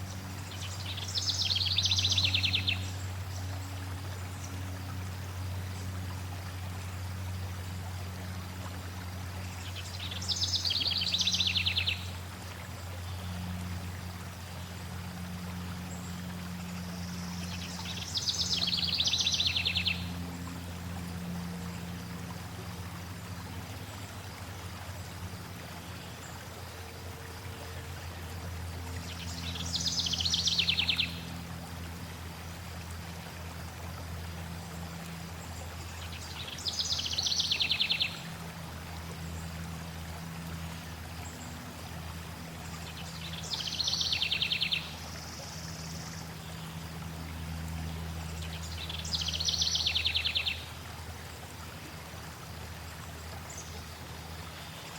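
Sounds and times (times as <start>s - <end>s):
flowing water: 0.0s - 54.9s
low steady hum: 0.0s - 54.9s
songbird trilling: 0.6s - 2.9s, 17.5s - 20.1s, 29.2s - 31.2s, 36.3s - 38.1s, 43.0s - 44.9s, 48.5s - 50.6s.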